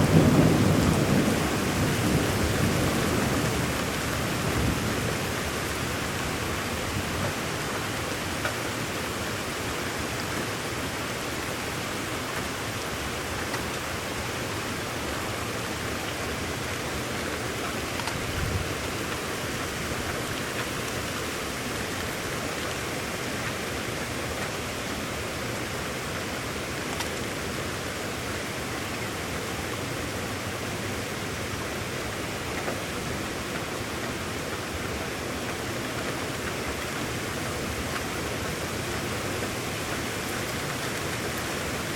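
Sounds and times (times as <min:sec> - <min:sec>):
rain falling: 0:00.0 - 0:41.9
low thump: 0:18.0 - 0:19.2.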